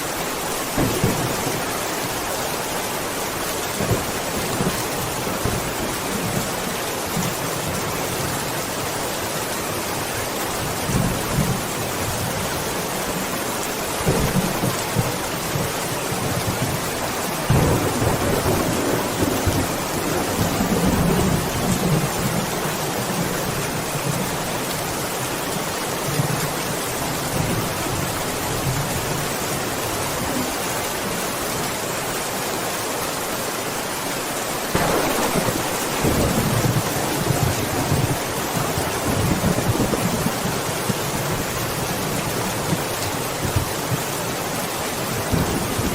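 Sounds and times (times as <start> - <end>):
heavy rain: 0.0 - 45.9
rolling thunder: 0.8 - 2.4, 17.4 - 22.6, 34.7 - 41.5.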